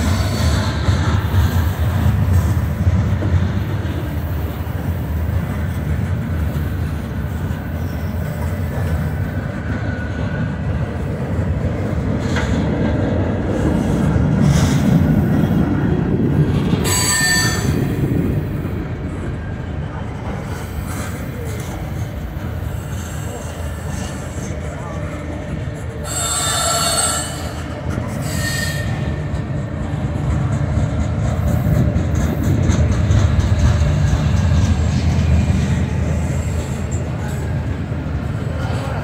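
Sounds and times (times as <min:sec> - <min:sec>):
train wheels rumbling on rail: 0:00.0 - 0:39.0
high-pitched wheel squeal: 0:16.8 - 0:17.8, 0:26.0 - 0:29.2.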